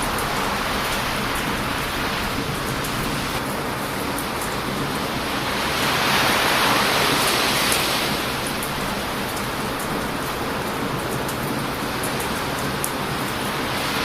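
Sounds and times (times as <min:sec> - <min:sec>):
heavy surf washing on beach: 0:00.0 - 0:14.0
wood bonfire crackling: 0:00.0 - 0:14.0.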